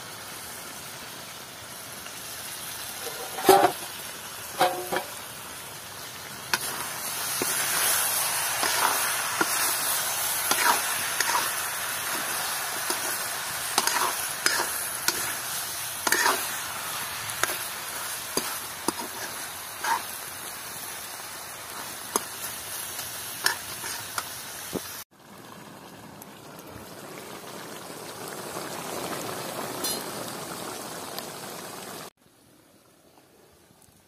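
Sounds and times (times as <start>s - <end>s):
chicken sizzling in a pan: 0.0s - 32.1s
metal spatula scraping a pan: 3.0s - 3.9s, 4.6s - 5.2s, 8.6s - 20.2s, 23.4s - 24.2s
curry bubbling: 6.0s - 24.3s.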